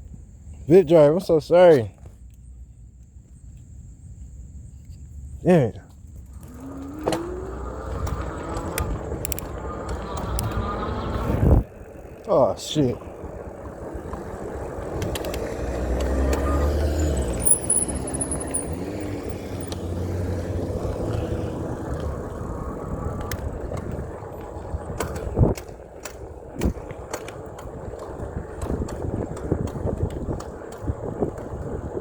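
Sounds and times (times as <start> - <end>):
motor vehicle passing: 6.2 - 25.5
scattered clicks: 7.9 - 10.7.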